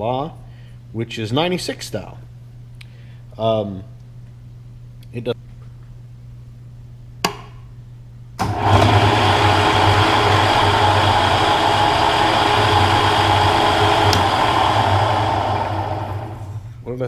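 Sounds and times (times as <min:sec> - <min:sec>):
machine tool motor humming: 0:08.4 - 0:16.7
click: 0:14.0 - 0:14.4.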